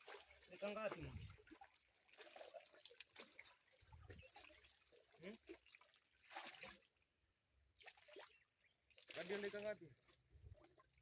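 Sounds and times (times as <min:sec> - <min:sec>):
small splashes and clicks: 0:00.0 - 0:07.1, 0:07.7 - 0:11.0
river water trickling: 0:00.0 - 0:11.0.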